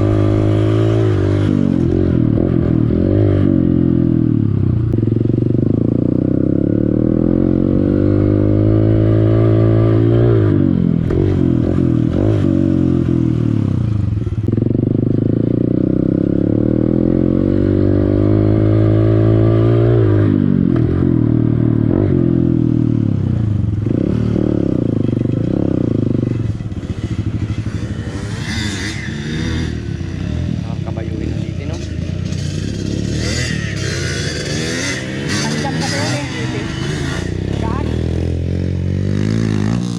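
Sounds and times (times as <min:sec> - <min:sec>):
dirt bike engine revving: 0:00.0 - 0:04.5, 0:14.4 - 0:39.9.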